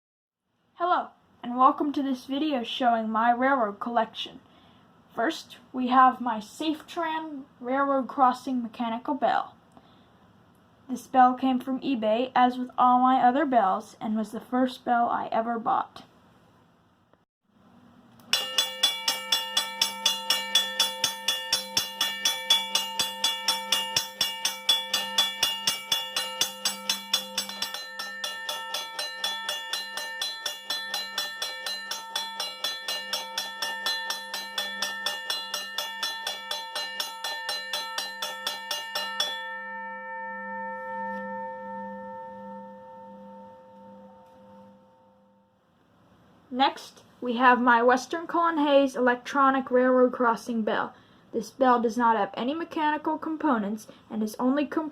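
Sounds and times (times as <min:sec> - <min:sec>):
railroad crossing bell ringing: 0:18.3 - 0:45.4.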